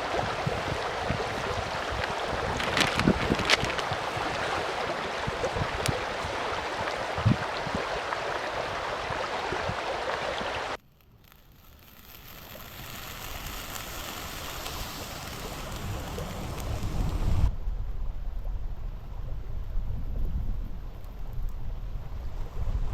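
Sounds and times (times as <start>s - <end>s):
mountain stream rushing: 0.0s - 10.8s, 13.5s - 17.5s.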